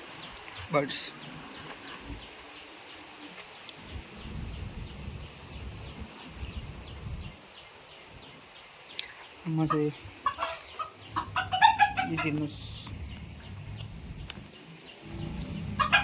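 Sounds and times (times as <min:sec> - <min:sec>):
low rumble: 0:03.8 - 0:07.4, 0:11.1 - 0:16.0.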